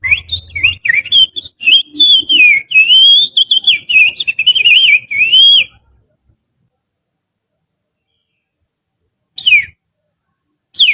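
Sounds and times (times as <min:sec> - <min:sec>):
finger whistling bird song: 0:00.0 - 0:05.8, 0:09.4 - 0:09.8.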